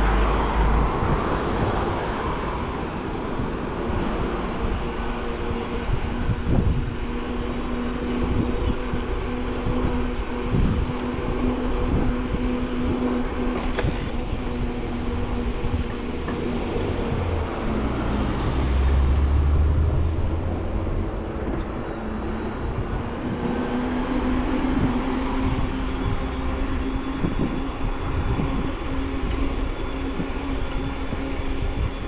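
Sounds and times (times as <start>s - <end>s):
wind on microphone: 0.0s - 32.0s
low rumble: 14.1s - 23.5s.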